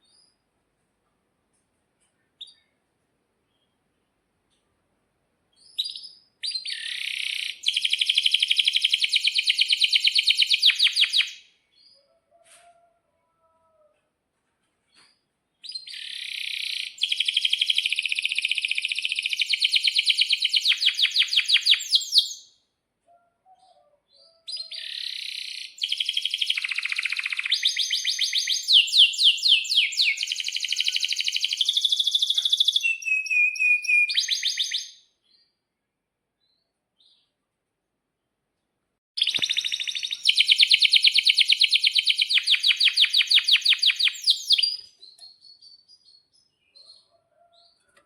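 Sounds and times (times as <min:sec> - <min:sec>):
canary singing trills: 0:05.6 - 0:12.2, 0:15.6 - 0:22.5, 0:23.1 - 0:35.4, 0:39.2 - 0:47.8.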